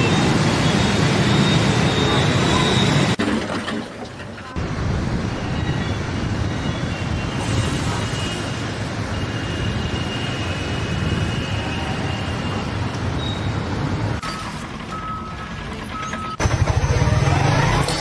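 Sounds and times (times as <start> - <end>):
large engine rumbling: 13.6 - 18.0.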